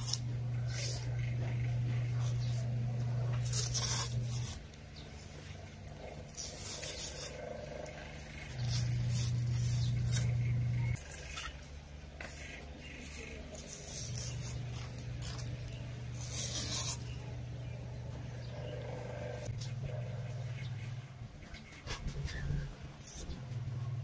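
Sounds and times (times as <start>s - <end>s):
knife scraping rubber tire: 0.0s - 5.2s, 6.1s - 11.6s, 12.2s - 17.7s
low hum: 0.0s - 24.0s.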